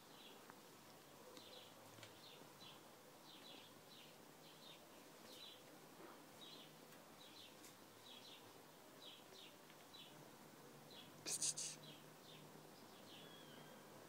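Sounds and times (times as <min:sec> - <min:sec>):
faint high bird chirps: 0:11.0 - 0:14.0.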